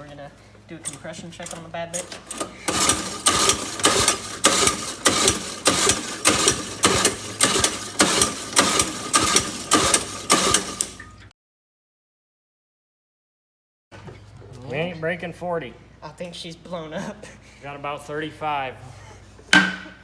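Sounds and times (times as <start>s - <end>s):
engine being cranked: 0.8s - 11.2s.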